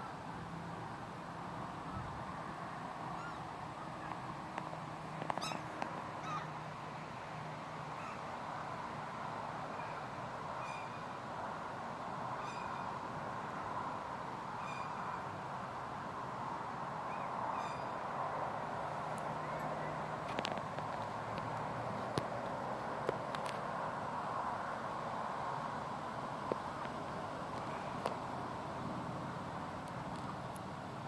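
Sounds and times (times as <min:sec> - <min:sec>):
steady background hiss: 0:00.0 - 0:31.0
gulls calling: 0:05.3 - 0:06.6.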